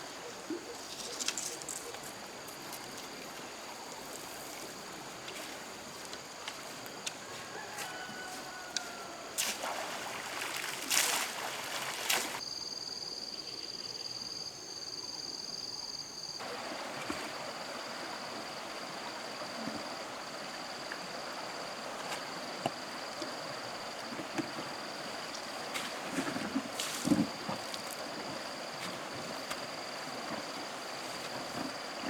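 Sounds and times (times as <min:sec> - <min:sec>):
flowing water: 0:07.4 - 0:12.4, 0:16.4 - 0:32.0
high-pitched insect trill: 0:07.5 - 0:16.5.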